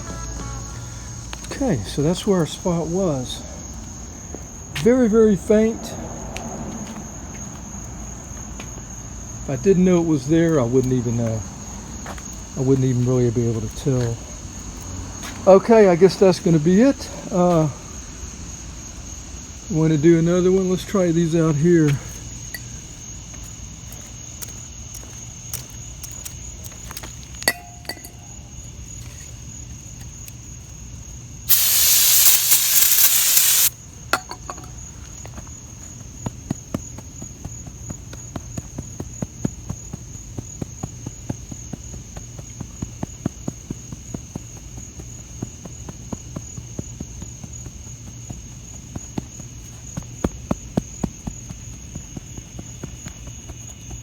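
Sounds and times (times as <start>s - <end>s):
crickets trilling: 0.0s - 54.0s
aerosol can spraying: 31.5s - 33.7s.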